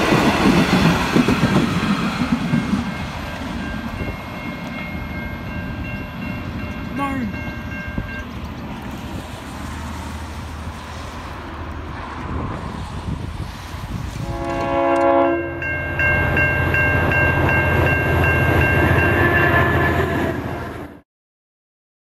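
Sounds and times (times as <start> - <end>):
diesel locomotive rumbling past: 0.0 - 21.0
level-crossing bells ringing: 2.7 - 8.3, 15.5 - 19.2
train horn chord: 14.2 - 16.1.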